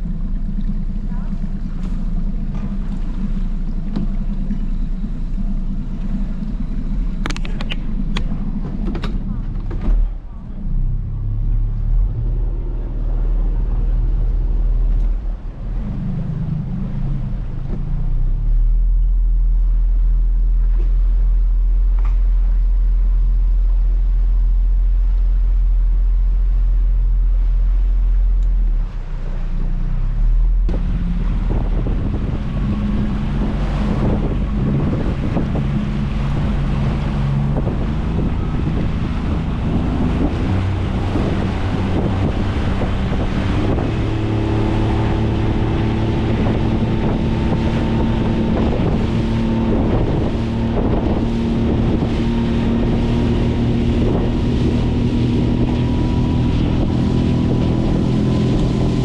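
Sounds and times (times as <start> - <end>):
hiss of wind and water: 0.0 - 59.0
motorboat engine rumbling: 0.0 - 59.0
wind buffeting microphone: 30.5 - 59.0.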